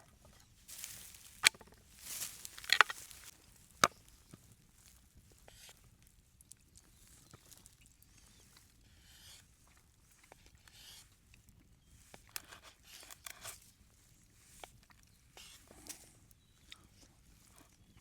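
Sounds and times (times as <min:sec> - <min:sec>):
faint rustling: 0:00.7 - 0:03.8.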